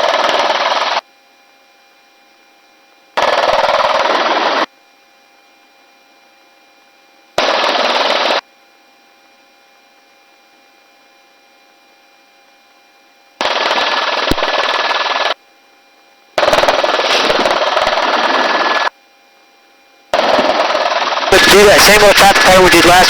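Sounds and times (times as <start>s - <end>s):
faint intercom hum: 21.3s - 23.0s.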